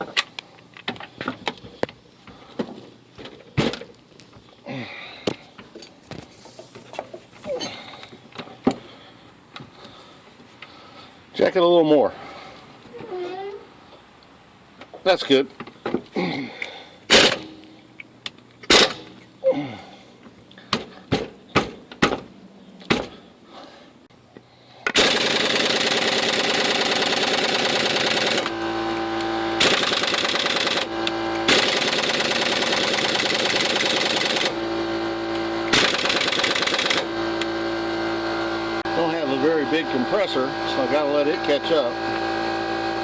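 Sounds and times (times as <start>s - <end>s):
air impact wrench hammering: 17.1s - 17.6s, 18.7s - 19.2s, 24.8s - 34.6s, 35.3s - 37.6s
steady hum: 23.3s - 43.0s.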